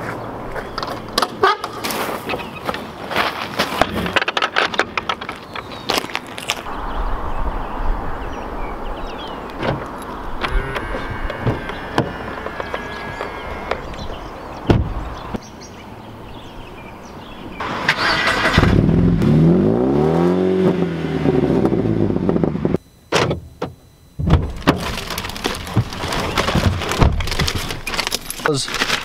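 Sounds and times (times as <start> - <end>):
car engine revving: 17.6 - 22.8.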